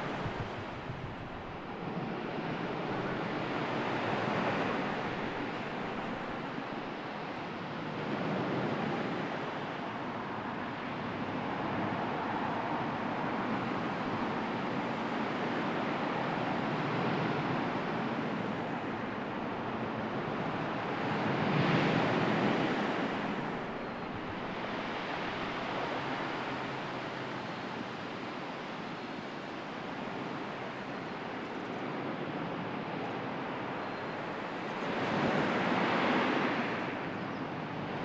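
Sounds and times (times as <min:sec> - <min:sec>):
sea surf washing onto shore: 0:20.2 - 0:31.0.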